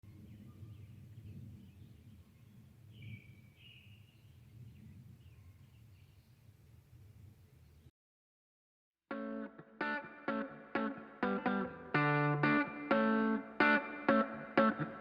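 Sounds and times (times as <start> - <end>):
bird chirps: 0.0 - 6.5.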